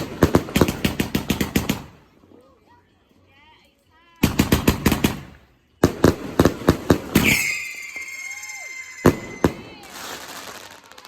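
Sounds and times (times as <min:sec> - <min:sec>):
fireworks bangs: 0:04.3 - 0:11.0
steady high whistle: 0:07.2 - 0:10.3.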